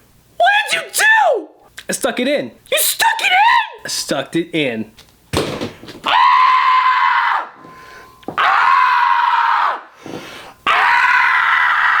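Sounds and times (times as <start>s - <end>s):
person screaming: 0.4s - 1.5s, 6.1s - 7.6s, 8.4s - 9.9s, 10.7s - 12.0s.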